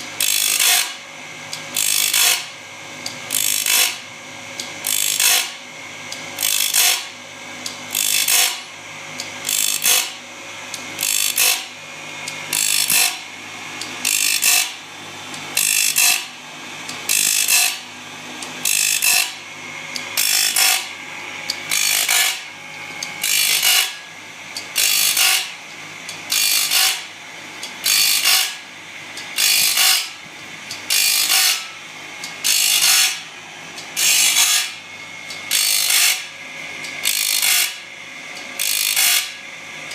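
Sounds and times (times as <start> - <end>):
grinder rasping strokes: 0.0 - 1.0, 1.7 - 2.5, 6.4 - 7.2, 7.9 - 8.7, 9.4 - 10.2, 10.8 - 14.9, 15.5 - 19.5, 20.1 - 24.1, 24.7 - 27.1, 27.8 - 28.6, 29.4 - 30.2, 30.9 - 31.8, 32.4 - 34.8, 35.5 - 36.3
faint machine hum: 0.0 - 39.9.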